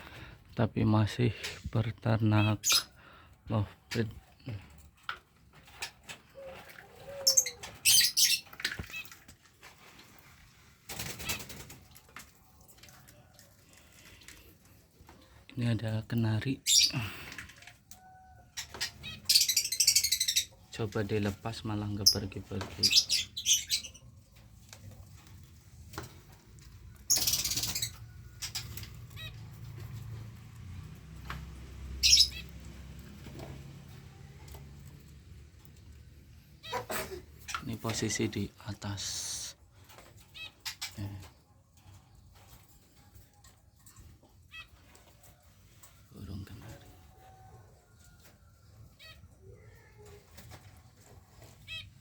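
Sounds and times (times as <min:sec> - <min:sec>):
canary rattling trills: 0:05.6 - 0:09.2, 0:16.6 - 0:17.0, 0:18.1 - 0:38.4, 0:39.9 - 0:45.0, 0:51.0 - 0:52.0.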